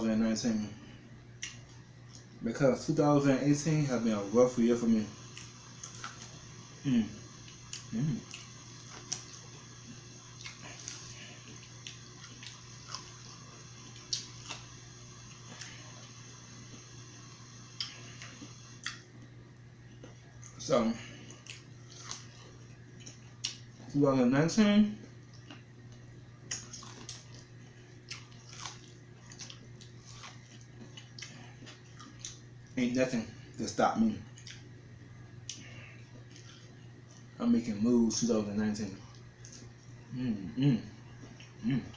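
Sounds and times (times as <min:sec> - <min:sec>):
faint steady hum: 0:00.0 - 0:41.9
wet chewing and lip smacks: 0:01.4 - 0:02.3, 0:10.3 - 0:13.3, 0:13.9 - 0:15.8, 0:17.8 - 0:19.2, 0:21.2 - 0:23.8, 0:25.2 - 0:32.8, 0:34.3 - 0:34.7, 0:35.4 - 0:37.3, 0:39.1 - 0:39.9.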